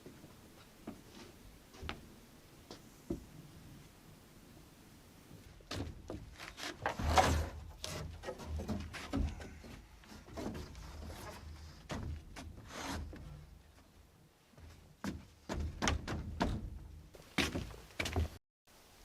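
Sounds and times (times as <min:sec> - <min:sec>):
wooden boards knocking and scraping: 0:05.7 - 0:13.4.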